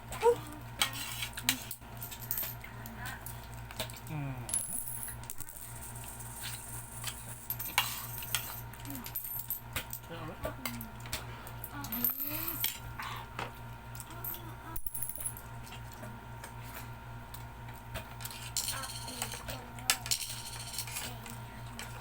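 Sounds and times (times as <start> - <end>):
utensils clinking on dishes: 6.4 - 12.9, 18.0 - 22.0.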